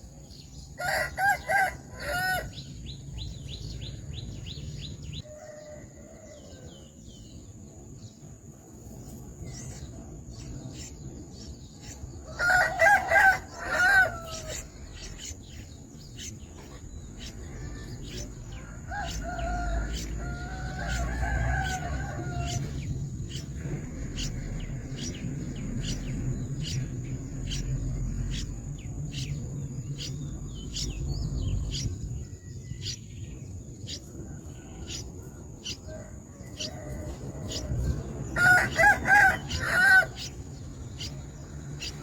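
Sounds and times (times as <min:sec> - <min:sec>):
rooster crowing: 0:00.8 - 0:02.6, 0:05.2 - 0:07.0, 0:12.2 - 0:14.7, 0:18.5 - 0:22.9, 0:35.9 - 0:40.3.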